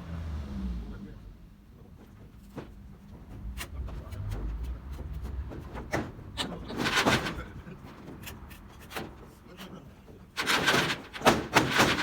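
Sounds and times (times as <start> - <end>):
metal scraping clatter: 6.6 - 7.6, 10.4 - 12.0
metal knocks and clanks: 10.4 - 12.0.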